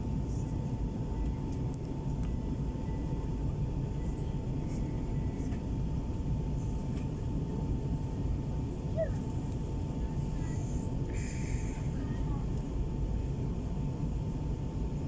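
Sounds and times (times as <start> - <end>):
airplane cabin rumble: 0.0 - 15.0
faint steady whine: 0.0 - 15.0.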